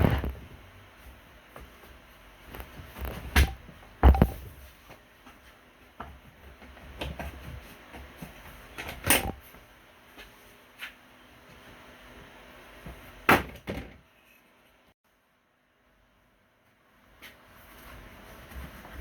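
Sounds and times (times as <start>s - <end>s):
knocks and clicks of objects handled: 3.0s - 4.5s.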